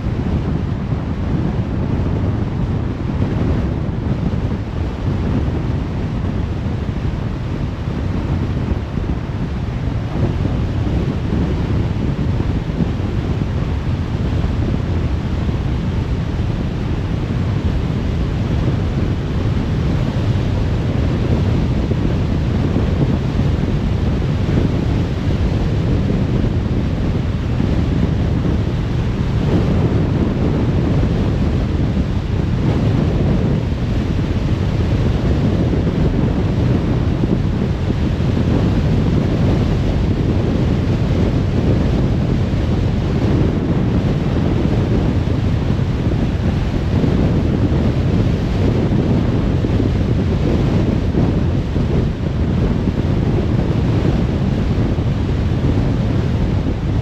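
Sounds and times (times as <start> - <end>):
wind noise on car: 0.0 - 57.0.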